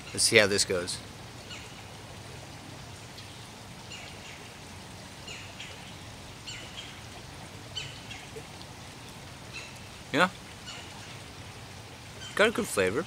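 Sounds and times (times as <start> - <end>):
small bird calling: 1.4 - 1.9, 3.2 - 4.6, 5.2 - 7.1, 7.7 - 8.5, 9.5 - 10.0, 10.6 - 12.9.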